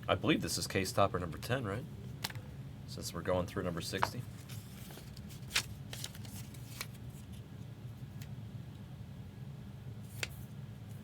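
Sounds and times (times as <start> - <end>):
steady low hum: 0.0 - 11.0
cards and packaging handled: 3.9 - 7.4.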